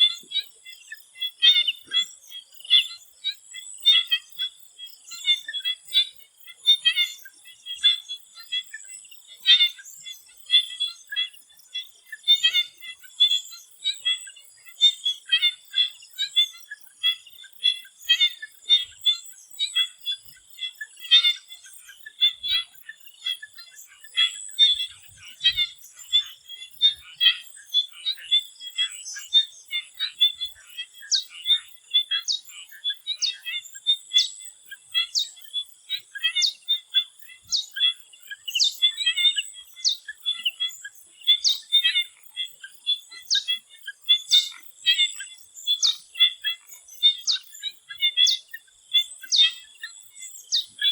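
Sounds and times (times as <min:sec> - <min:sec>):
frog chorus croaking: 0:14.3 - 0:50.9.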